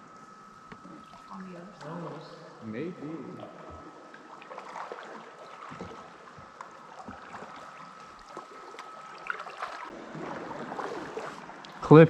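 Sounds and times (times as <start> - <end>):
faint steady high tone: 0.0 - 4.3
kayak paddles dipping: 3.6 - 12.0.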